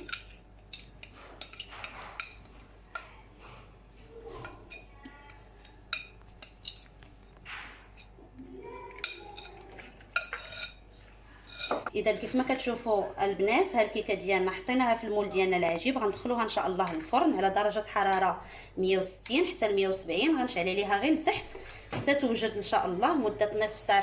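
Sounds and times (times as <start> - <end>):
utensils scraping a mixing bowl: 0.0 - 3.7.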